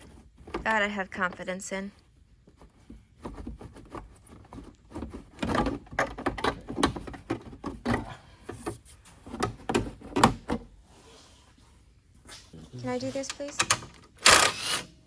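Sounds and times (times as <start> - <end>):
hand tools clicking and knocking: 2.5 - 10.6.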